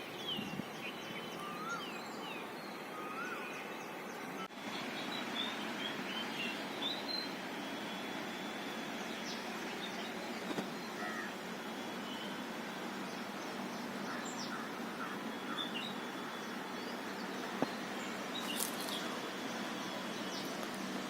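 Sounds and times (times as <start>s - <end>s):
steady background hiss: 0.0s - 21.0s
bird chirps and calls: 0.2s - 3.9s.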